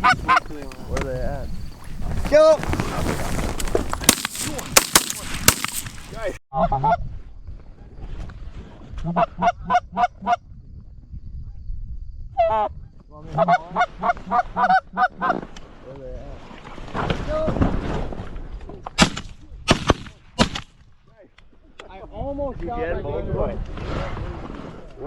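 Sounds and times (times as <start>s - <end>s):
shotgun shots: 4.1s - 6.3s.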